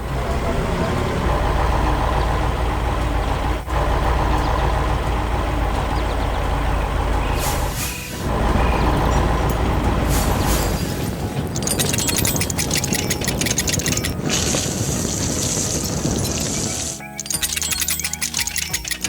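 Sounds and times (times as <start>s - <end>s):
heavy machinery engine running: 0.0s - 19.0s
high crackle: 11.5s - 19.0s.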